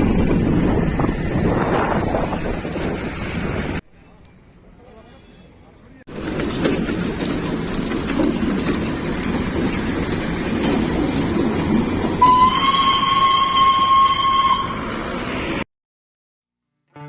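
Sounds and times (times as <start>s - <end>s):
train rumbling: 0.0s - 15.6s
train whistle: 12.2s - 15.4s.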